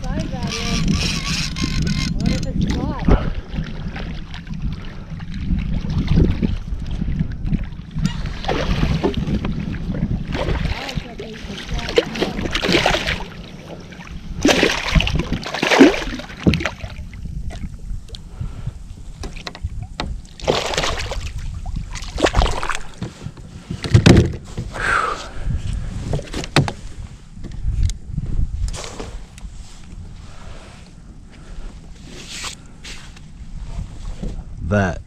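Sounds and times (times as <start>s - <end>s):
knocks and clicks on hull: 0.0s - 13.6s, 14.4s - 17.7s, 19.1s - 24.7s, 26.1s - 26.8s
water splashing against kayak: 0.1s - 24.8s.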